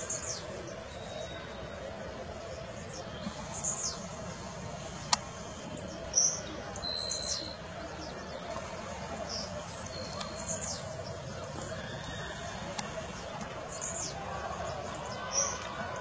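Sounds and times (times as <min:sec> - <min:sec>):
birds chirping: 0:00.0 - 0:16.0
whistled bird note: 0:06.2 - 0:07.6.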